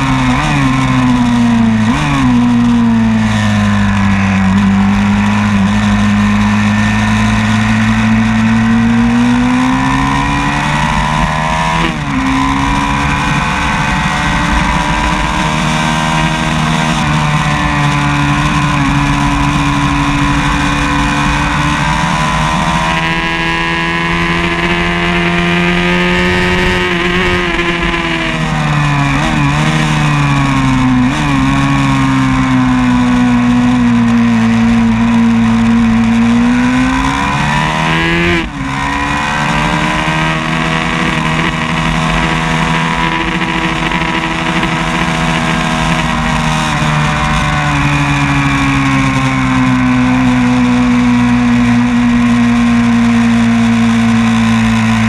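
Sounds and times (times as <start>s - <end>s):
racing motorcycle engine: 0.0s - 55.0s.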